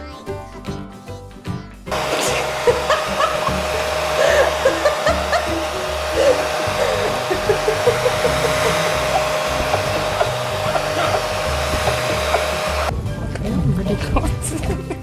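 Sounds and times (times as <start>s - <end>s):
blower motor rushing air: 1.9s - 12.9s.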